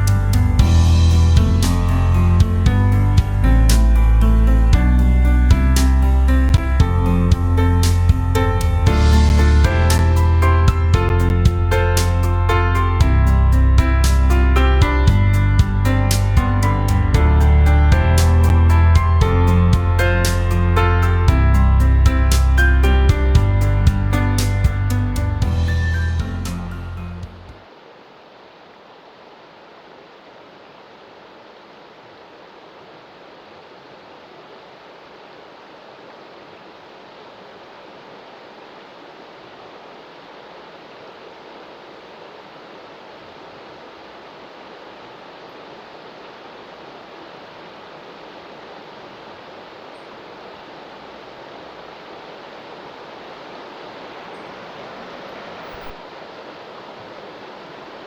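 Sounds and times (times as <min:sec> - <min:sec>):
stream rushing: 0:00.0 - 0:58.0.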